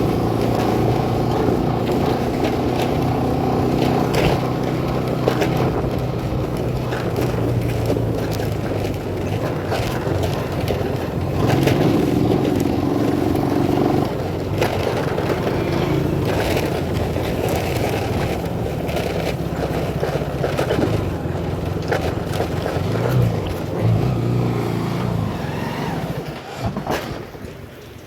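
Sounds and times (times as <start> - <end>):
motorcycle engine running: 0.0 - 26.3
road and wind noise: 0.0 - 28.0.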